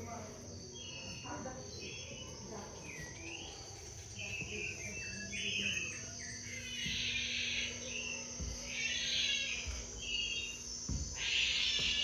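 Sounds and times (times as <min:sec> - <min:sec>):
birds chirping: 0:00.0 - 0:12.0
insects droning: 0:00.0 - 0:12.0.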